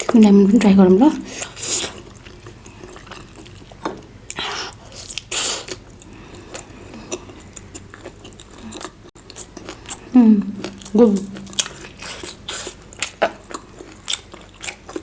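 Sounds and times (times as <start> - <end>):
crunchy chewing of fried chicken: 1.2 - 15.0.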